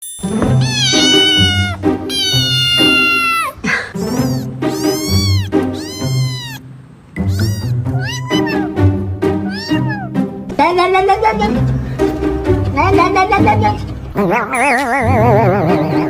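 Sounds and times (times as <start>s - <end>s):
cat meowing: 0.4s - 8.8s, 9.4s - 10.2s.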